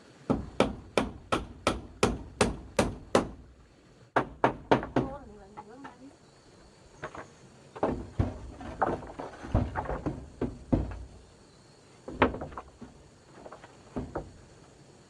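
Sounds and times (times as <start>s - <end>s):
irregular knocks and thuds: 0.3s - 3.5s, 4.1s - 6.0s, 7.0s - 11.3s, 12.0s - 14.6s.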